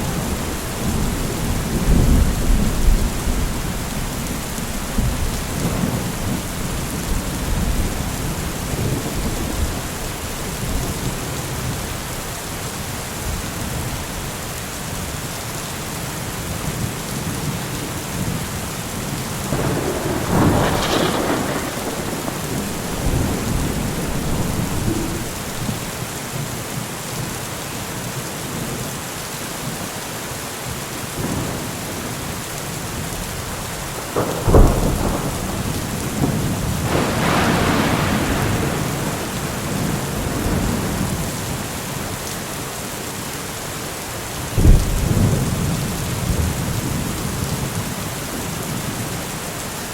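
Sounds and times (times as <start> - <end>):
thunder rumbling: 0.0 - 12.2, 19.4 - 26.1, 32.9 - 42.1, 44.6 - 49.2
steady rain: 0.0 - 49.9.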